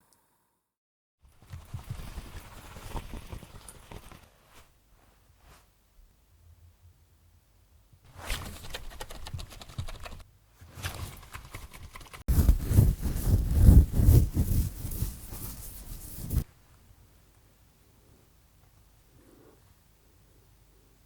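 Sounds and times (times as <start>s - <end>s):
harsh rapid scratching and scraping: 8.1s - 16.5s.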